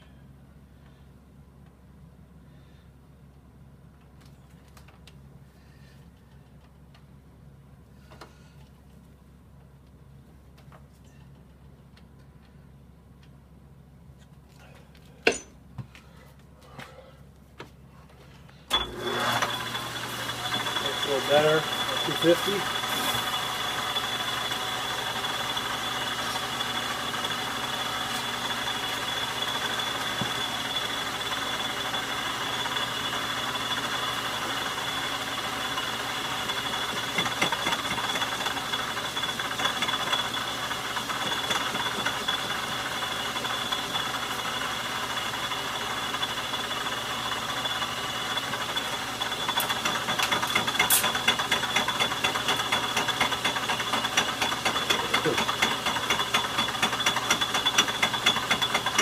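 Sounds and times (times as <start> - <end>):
lathe drive rattling: 18.7 - 59.0
metal lathe whining: 18.7 - 59.0.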